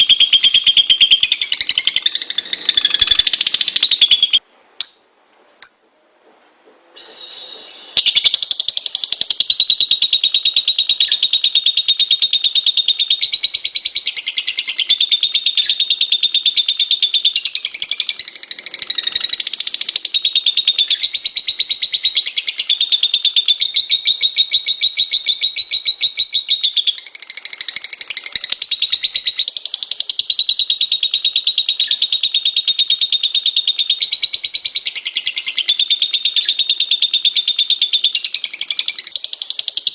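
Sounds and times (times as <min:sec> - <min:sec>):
lovebird chattering: 0:00.0 - 0:05.9.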